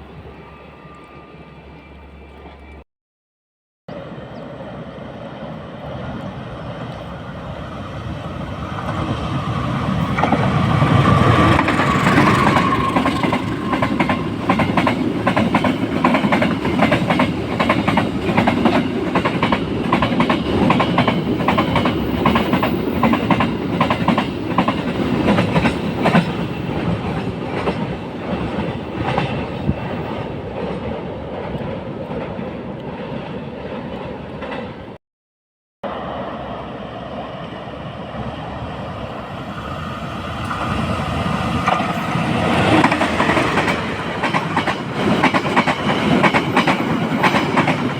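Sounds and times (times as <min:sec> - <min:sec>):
train wheels clacking over rail joints: 0:11.2 - 0:29.5, 0:41.6 - 0:47.9.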